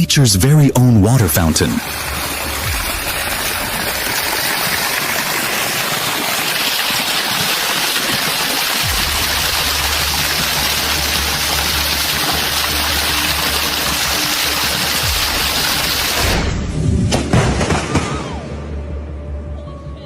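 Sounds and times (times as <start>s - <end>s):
water gushing and splashing: 1.4s - 16.8s.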